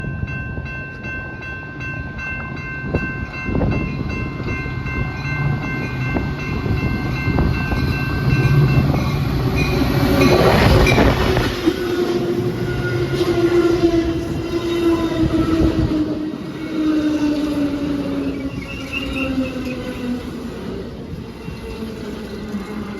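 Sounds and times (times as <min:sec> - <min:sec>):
train passing loudly: 0:00.0 - 0:22.9
train brake whine: 0:09.5 - 0:22.9
multi-tone train horn chord: 0:10.2 - 0:20.3.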